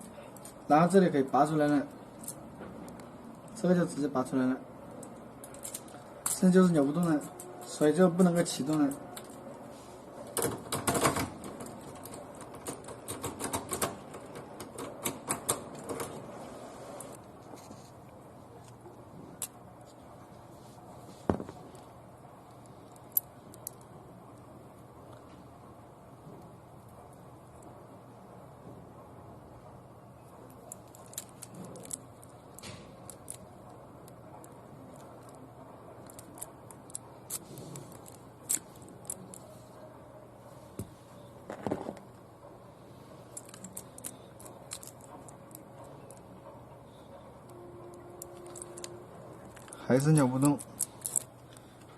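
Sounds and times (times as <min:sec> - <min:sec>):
car keys clicking and jingling: 0:30.6 - 0:33.6, 0:34.4 - 0:39.5, 0:43.3 - 0:46.4, 0:47.4 - 0:51.7
car key rattling in ignition lock: 0:43.4 - 0:46.2
keys jangling on ring: 0:48.2 - 0:49.8.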